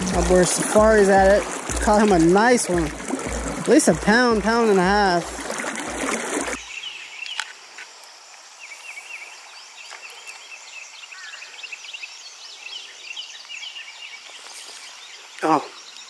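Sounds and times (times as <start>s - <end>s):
flowing river water: 0.0s - 6.9s
birds chirping: 0.0s - 16.0s.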